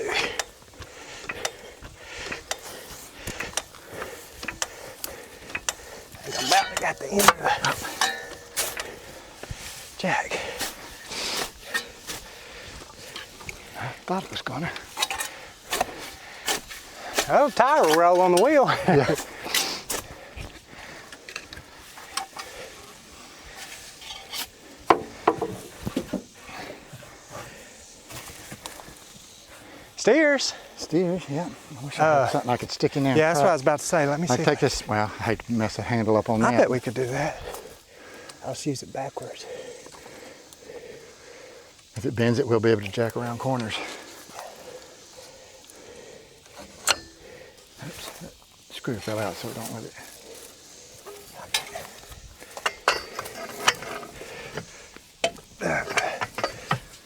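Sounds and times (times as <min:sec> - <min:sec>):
vehicle jack metal clicks: 0:00.4 - 0:09.6, 0:24.0 - 0:26.4, 0:46.4 - 0:47.2, 0:51.0 - 0:57.0
metal parts clinking: 0:05.5 - 0:09.2, 0:46.8 - 0:47.2, 0:51.0 - 0:57.0
sharp knocks: 0:24.9 - 0:26.2.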